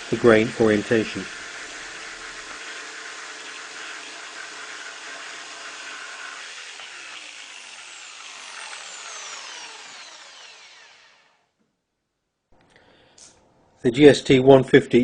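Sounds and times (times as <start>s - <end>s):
jigsaw cutting wood: 0.0s - 11.5s
motor whine running down: 6.2s - 11.4s.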